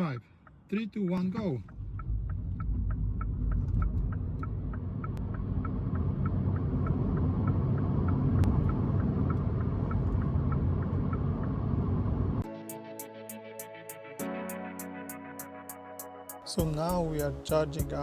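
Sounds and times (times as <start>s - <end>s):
steady ticking: 0.0s - 11.6s
road and tyre rumble: 0.4s - 12.4s
music: 12.4s - 18.0s.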